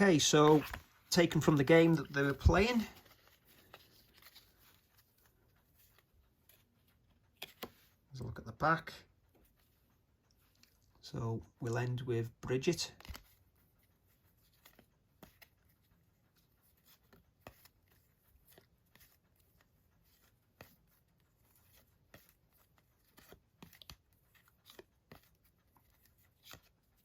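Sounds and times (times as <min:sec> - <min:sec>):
cards and packaging clicking: 0:00.0 - 0:08.0, 0:12.7 - 0:13.5, 0:14.4 - 0:27.0.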